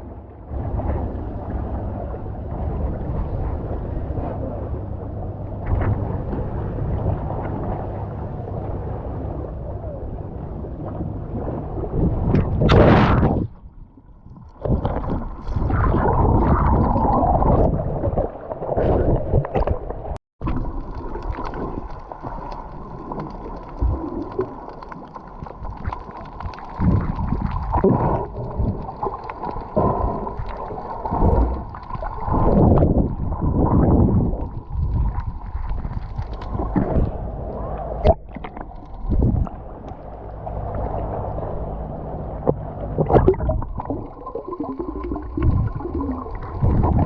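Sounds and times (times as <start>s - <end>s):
water sloshing and gurgling: 0.0s - 47.0s
wind buffeting microphone: 26.8s - 29.0s, 31.1s - 47.0s.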